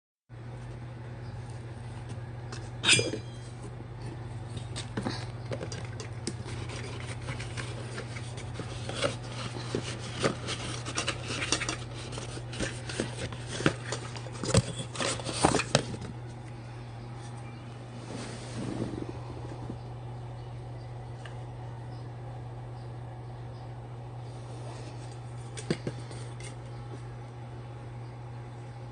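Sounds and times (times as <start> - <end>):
steady low hum: 0.4 - 28.9.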